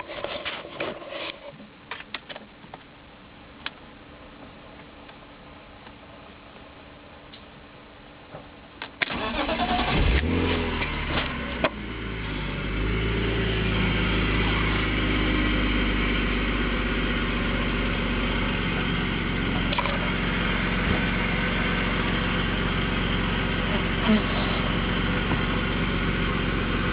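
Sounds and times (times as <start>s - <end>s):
engine starting and idling: 9.0s - 11.7s.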